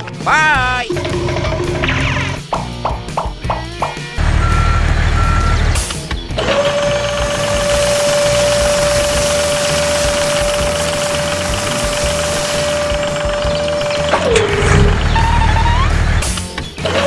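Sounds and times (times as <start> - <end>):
hiss: 3.8 - 17.0
small motor whine: 6.4 - 17.0.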